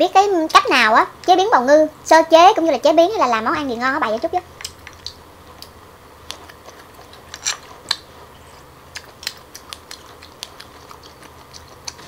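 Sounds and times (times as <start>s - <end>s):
wet chewing clicks and smacks: 4.6s - 12.0s.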